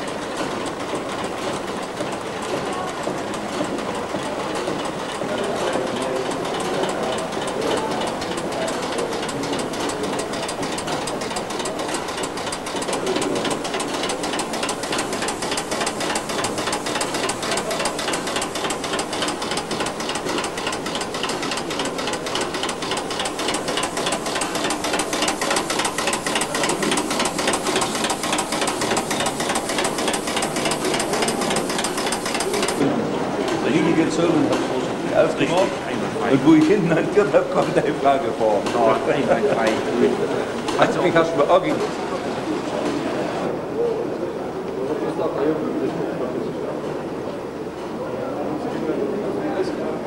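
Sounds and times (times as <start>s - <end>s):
small machine clattering: 0.0s - 42.0s.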